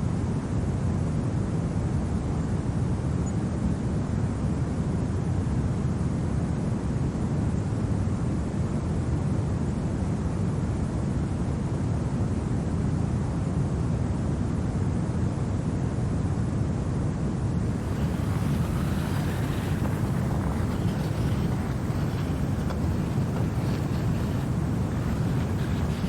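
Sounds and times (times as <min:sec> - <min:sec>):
faint hissy noise: 0:17.6 - 0:26.0
steady wind rushing: 0:17.6 - 0:26.0.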